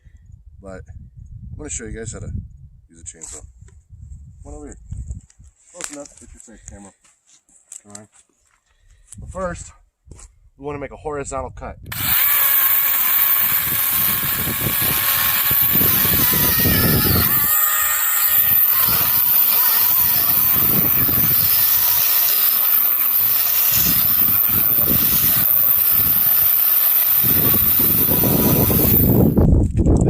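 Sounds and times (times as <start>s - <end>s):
electric chainsaw cutting wood: 11.9s - 29.4s.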